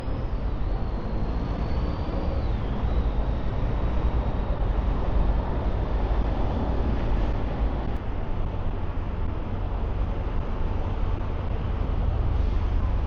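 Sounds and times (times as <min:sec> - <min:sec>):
city traffic rumble: 0:00.0 - 0:13.0
faint high whine: 0:00.0 - 0:13.0.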